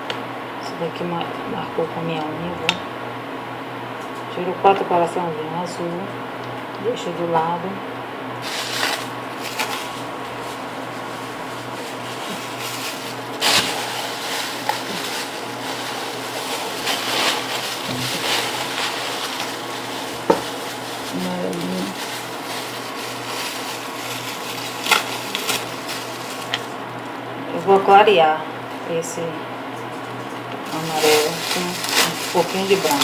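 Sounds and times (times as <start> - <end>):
electric fan running: 0.0 - 33.0.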